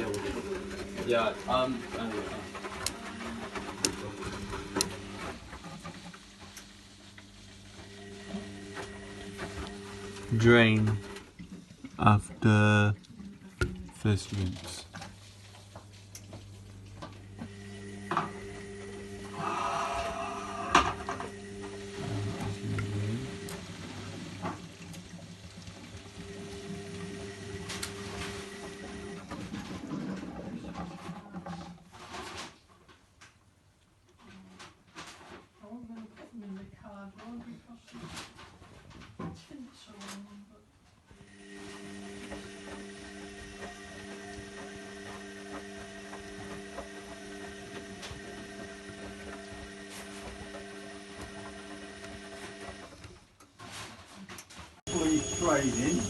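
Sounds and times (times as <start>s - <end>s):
pump whine: 0.0s - 11.8s, 16.3s - 29.8s, 41.2s - 53.2s, 54.9s - 56.0s
washing machine motor hum: 0.0s - 31.6s, 41.0s - 56.0s.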